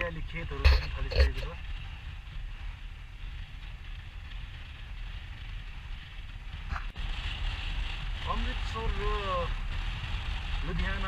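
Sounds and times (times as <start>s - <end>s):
motorcycle engine and tyres: 0.0s - 11.0s
wind rumble on microphone: 0.0s - 11.0s.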